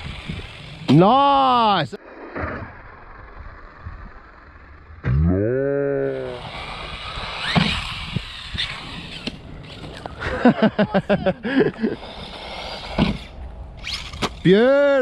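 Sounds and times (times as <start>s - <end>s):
rc cars rushing on rough ground: 0.0s - 5.1s, 5.8s - 15.0s
motor whines: 6.0s - 10.2s.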